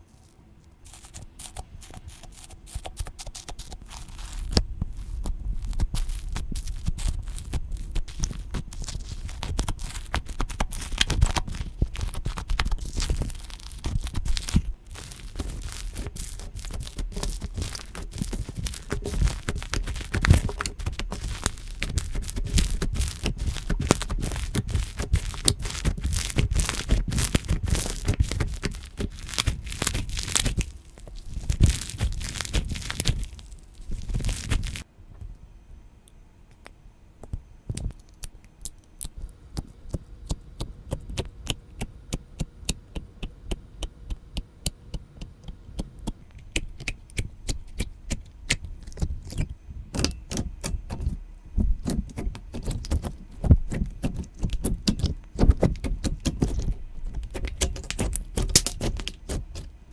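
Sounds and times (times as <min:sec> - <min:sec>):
slime squeezed by hand: 0:00.9 - 0:34.8.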